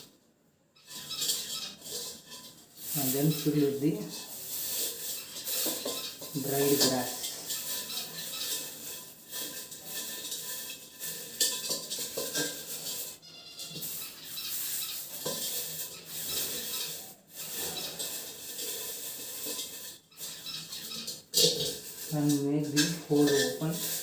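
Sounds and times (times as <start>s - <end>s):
dried grass rustling and crackling: 0.9s - 24.0s
clicks and knocks from handling pot: 4.8s - 13.9s.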